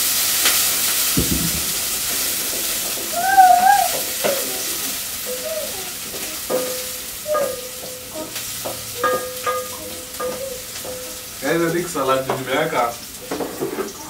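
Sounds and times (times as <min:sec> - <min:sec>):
food sizzling in a pot: 0:00.0 - 0:14.0
wooden spoon knocking pot: 0:06.1 - 0:11.4.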